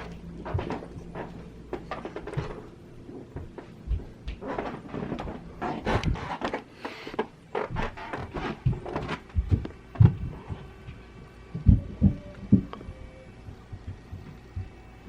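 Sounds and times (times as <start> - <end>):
kids running and stomping overhead: 8.6 - 11.0.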